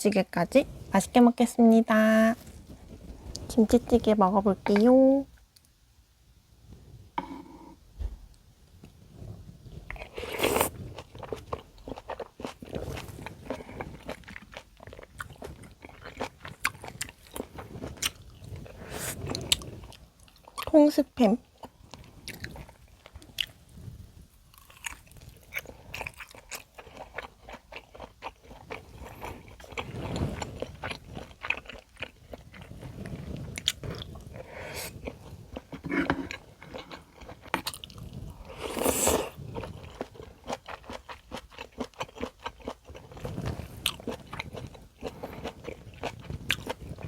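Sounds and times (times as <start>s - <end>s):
person chewing and biting: 10.0s - 18.4s, 24.5s - 32.7s, 34.9s - 47.0s.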